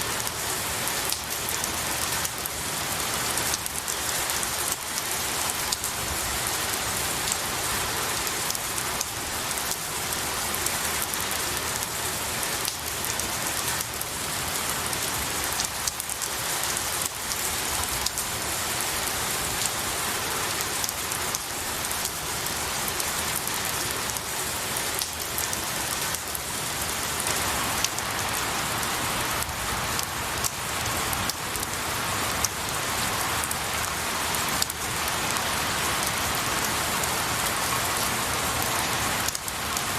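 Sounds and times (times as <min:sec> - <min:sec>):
rain falling on pine needles: 0:00.0 - 0:39.9.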